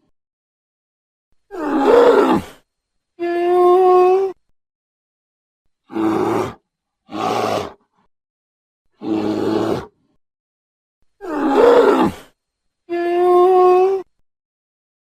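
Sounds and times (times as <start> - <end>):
bear growling: 1.5 - 2.6, 5.9 - 8.0, 9.0 - 10.0, 11.2 - 12.4.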